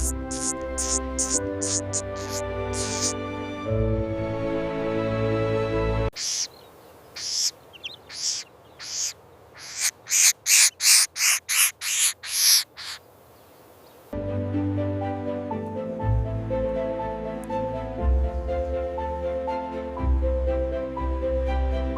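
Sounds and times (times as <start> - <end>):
bird harsh hissing calls: 0.0 - 3.2, 6.1 - 14.1
background music: 0.0 - 6.2, 14.2 - 21.9.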